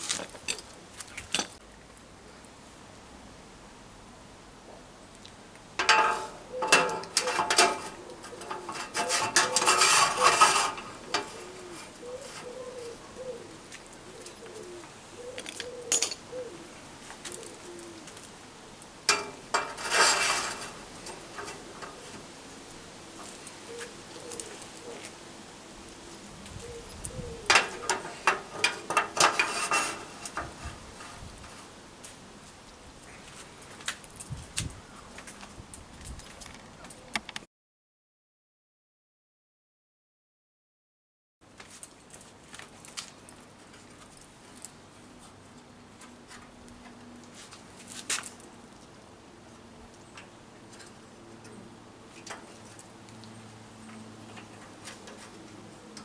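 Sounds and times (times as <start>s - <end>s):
metal clattering and clanking: 5.8s - 11.7s, 19.1s - 22.1s, 27.5s - 31.2s
pigeon cooing: 5.8s - 18.2s, 23.0s - 30.8s.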